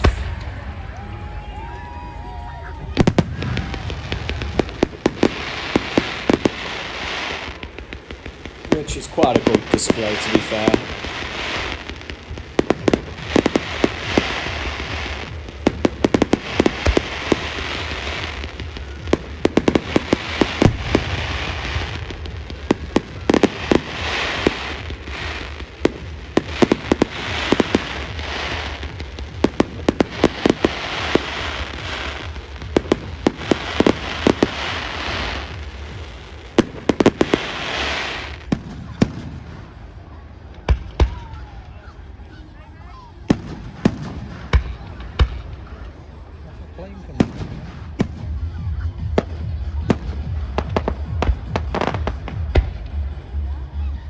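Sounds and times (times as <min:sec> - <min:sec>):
low rumble: 0:00.0 - 0:08.8
firework bangs: 0:00.0 - 0:42.3, 0:43.2 - 0:46.4
fireworks crackling: 0:00.0 - 0:53.6.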